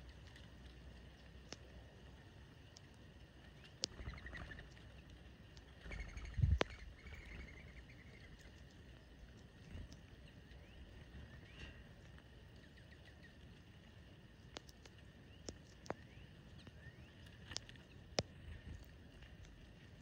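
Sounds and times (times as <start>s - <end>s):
low background rumble: 0.0s - 20.0s
faint small bird chirps: 3.5s - 5.0s, 5.6s - 13.4s, 14.5s - 18.8s.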